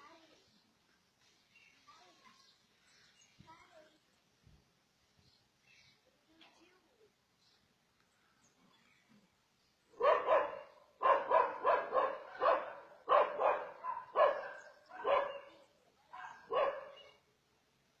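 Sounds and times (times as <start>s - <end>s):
dog barking: 10.0s - 17.2s.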